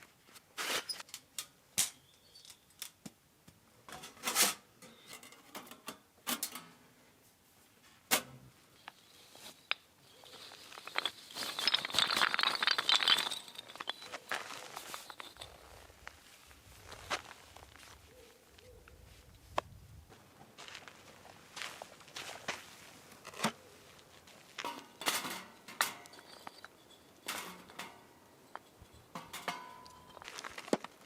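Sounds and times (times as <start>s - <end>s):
objects clicking and knocking: 8.1s - 16.1s, 24.6s - 31.0s
rustling or crinkling: 8.7s - 31.0s.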